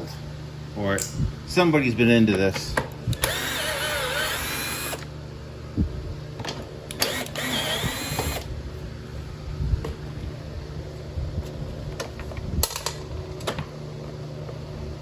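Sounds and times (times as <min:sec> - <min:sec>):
power drill motor whine: 0:03.1 - 0:05.1, 0:06.9 - 0:08.5.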